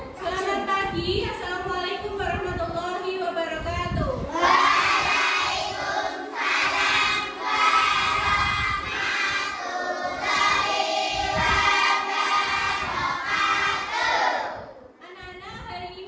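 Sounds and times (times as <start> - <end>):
children chanting in unison: 4.3 - 14.8.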